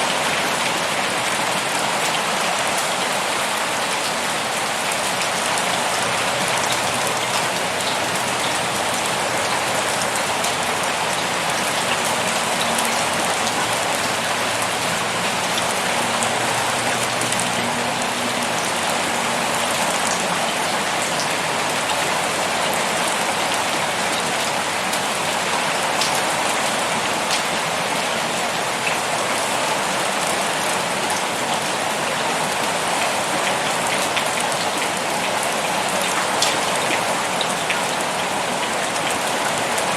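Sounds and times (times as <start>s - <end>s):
heavy rain pouring: 0.0s - 39.9s
raindrops tapping on a surface: 33.5s - 39.8s.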